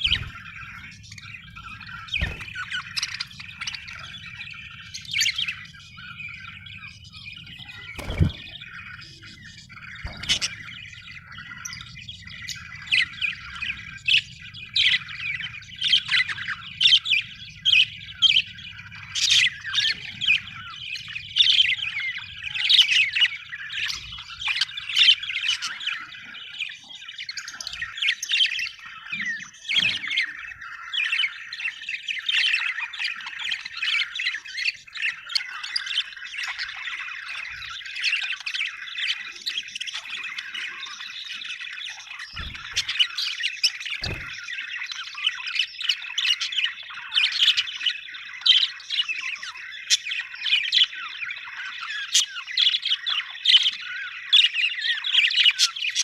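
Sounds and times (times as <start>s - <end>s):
budgerigars chirping: 0.0s - 56.0s.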